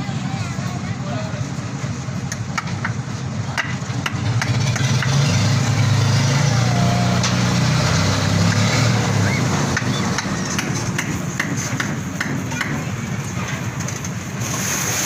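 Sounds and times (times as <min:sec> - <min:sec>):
engine humming: 0:00.0 - 0:14.9.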